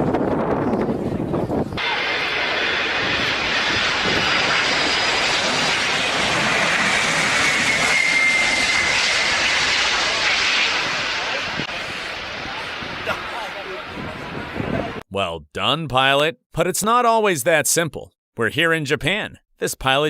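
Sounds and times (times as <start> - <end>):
jet engines whining: 0.1 - 15.0.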